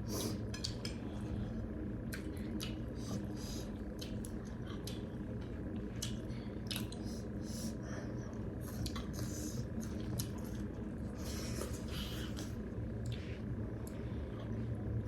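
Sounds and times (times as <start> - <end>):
steady low hum: 0.0 - 15.0
wet chewing and smacking: 5.8 - 7.1, 8.7 - 10.8.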